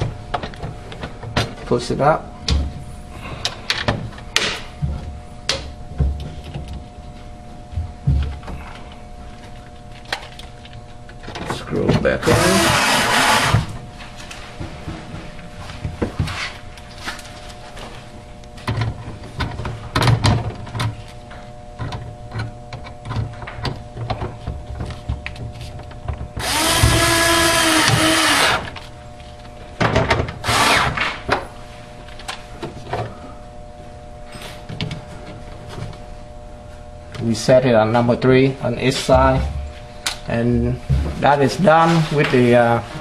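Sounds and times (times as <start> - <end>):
power screwdriver running: 12.2 - 13.7, 26.4 - 28.8, 30.4 - 31.0.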